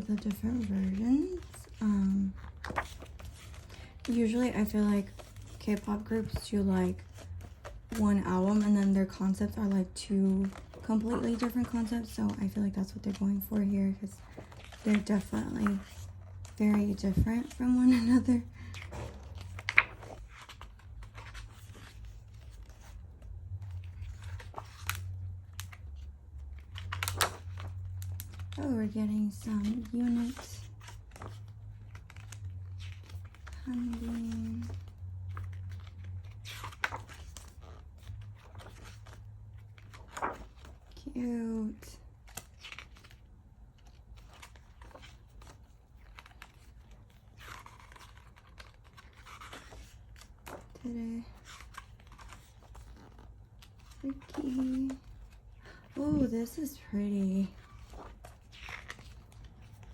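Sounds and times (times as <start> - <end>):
paper crinkles: 0.0 - 41.0, 42.1 - 59.9
paper pages rustling: 0.0 - 41.1, 42.0 - 59.9
page-turn swish: 29.7 - 41.0.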